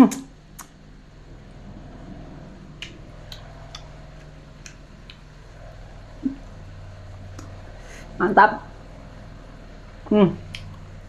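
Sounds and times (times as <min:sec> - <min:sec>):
mouth clicks and lip smacks: 0:00.0 - 0:00.8, 0:02.8 - 0:05.3, 0:10.4 - 0:10.9
faint hum: 0:00.0 - 0:11.0.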